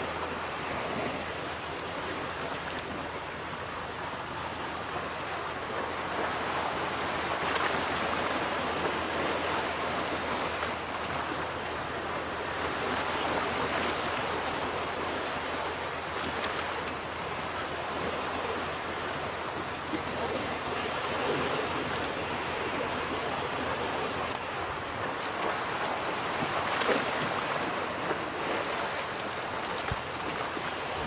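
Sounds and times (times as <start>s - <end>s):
ocean waves washing onto beach: 0.0s - 31.0s.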